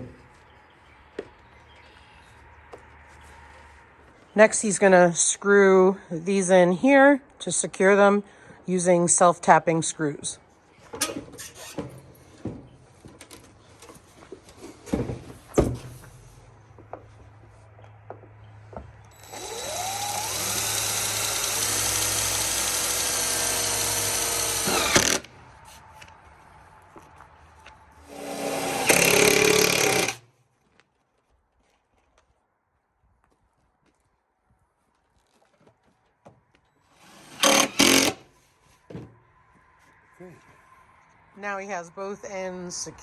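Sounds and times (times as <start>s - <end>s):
power drill motor whining: 19.1s - 25.3s, 28.1s - 30.2s, 36.9s - 38.2s.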